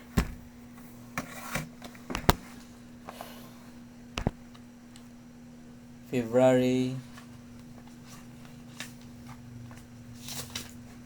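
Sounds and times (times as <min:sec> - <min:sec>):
sharp knocks and clicks: 0:04.2 - 0:04.4.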